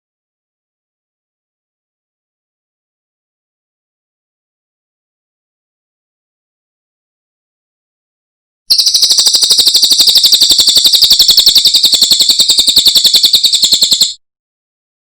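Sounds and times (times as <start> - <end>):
bird high-pitched trill: 8.7 - 14.2.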